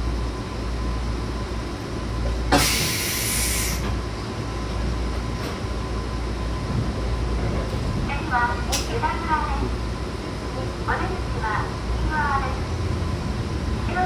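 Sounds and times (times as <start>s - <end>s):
electric train rumble: 0.0s - 14.0s
loud hiss: 2.5s - 3.8s.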